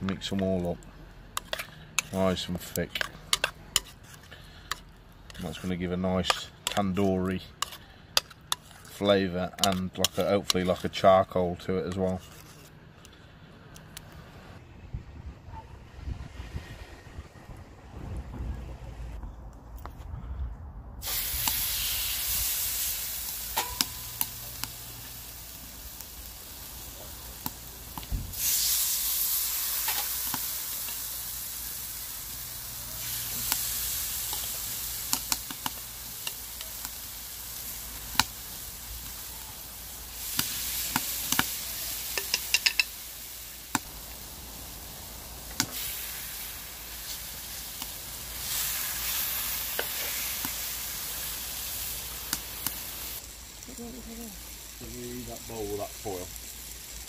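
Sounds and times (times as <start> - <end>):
meat sizzling in hot oil: 21.0 - 57.0
tongs clicking against a pan: 23.6 - 24.8, 34.3 - 37.1, 40.3 - 41.5, 42.1 - 42.9.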